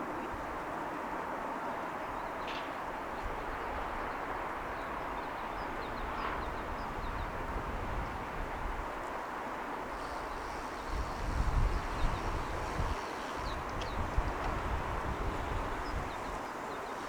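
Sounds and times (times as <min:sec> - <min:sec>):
distant traffic hum: 0:09.5 - 0:17.0.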